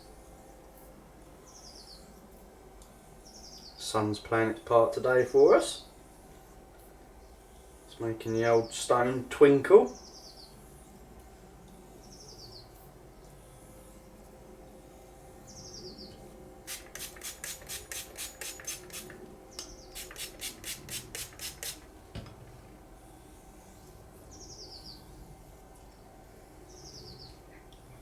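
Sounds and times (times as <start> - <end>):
blade scraping on wet stone hone: 16.7 - 19.2, 19.9 - 21.9.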